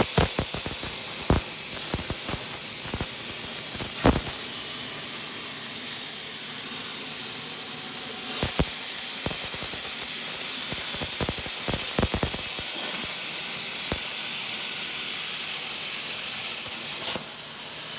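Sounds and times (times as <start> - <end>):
sharp pops: 0.0 - 4.6, 8.4 - 13.2
plasma torch arc hissing: 0.0 - 17.2.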